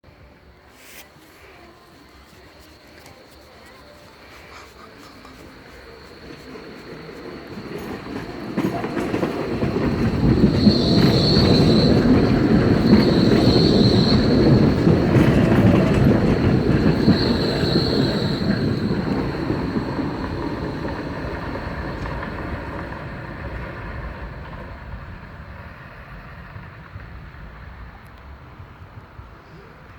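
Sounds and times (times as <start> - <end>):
tram wheels rumbling on rails: 1.8 - 29.9
high-pitched wheel squeals: 9.8 - 21.2.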